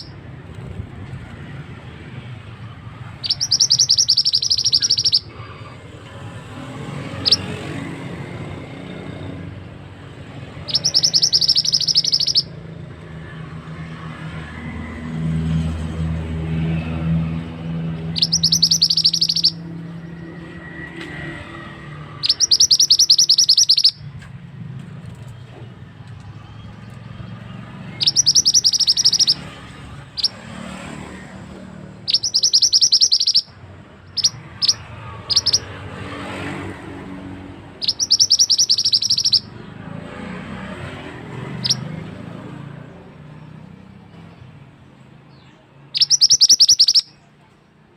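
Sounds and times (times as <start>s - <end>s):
songbird chattering song: 0.0s - 0.2s, 2.8s - 5.8s, 6.7s - 7.9s, 10.4s - 12.6s, 17.7s - 24.2s, 26.2s - 30.7s, 31.9s - 36.6s, 37.7s - 40.0s, 41.3s - 47.8s.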